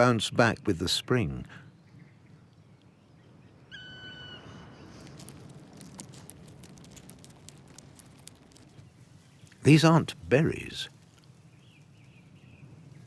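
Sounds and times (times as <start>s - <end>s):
whistled bird call: 3.7s - 4.9s
faint ticks and crackles: 4.8s - 12.2s.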